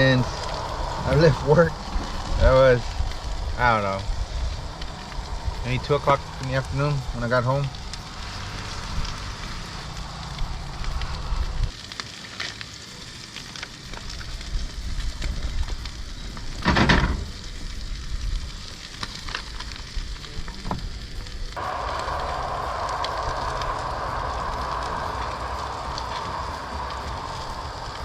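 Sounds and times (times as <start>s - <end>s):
steak sizzling in a skillet: 0.0s - 28.0s.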